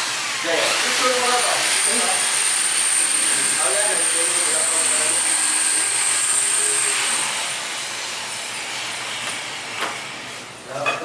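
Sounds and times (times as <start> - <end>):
air conditioner hiss: 0.0 - 2.6, 6.4 - 11.0
thin high whine: 0.8 - 7.6.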